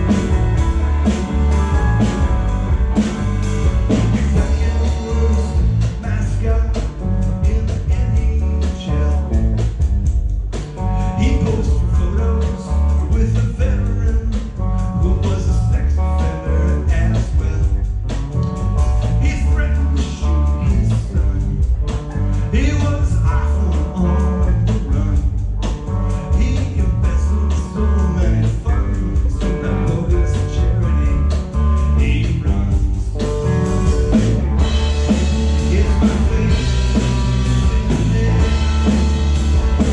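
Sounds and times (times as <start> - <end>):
person singing: 0.0 - 9.4, 26.3 - 39.9
electric guitar: 0.0 - 10.0, 10.6 - 39.9
bass guitar: 0.0 - 39.9
drum kit beat: 0.0 - 39.9.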